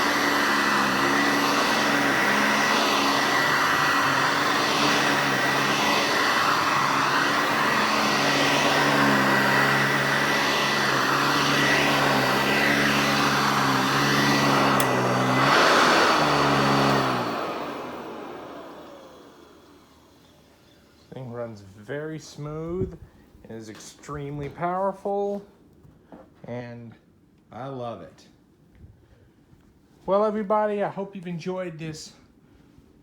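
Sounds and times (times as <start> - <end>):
vacuum winding down: 0.0 - 20.7
upright vacuum running: 0.0 - 21.0.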